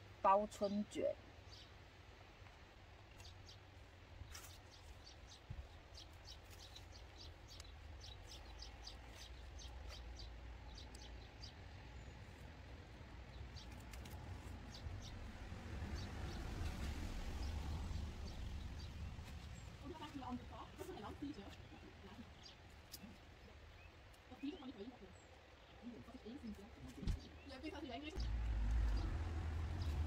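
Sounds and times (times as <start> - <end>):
small birds chirping: 0.3 - 30.0
low steady rumble: 28.2 - 30.0.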